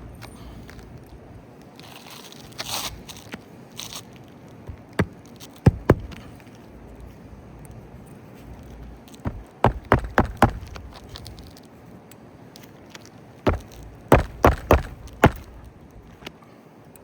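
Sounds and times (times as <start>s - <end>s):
hammer driving nails into shingle: 4.7s - 6.4s, 9.2s - 11.5s, 13.5s - 16.3s.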